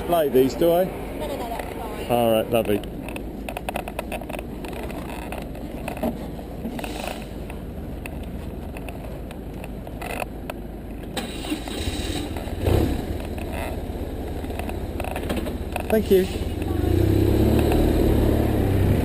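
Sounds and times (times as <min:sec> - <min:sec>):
motorcycle engine running: 0:11.6 - 0:19.0.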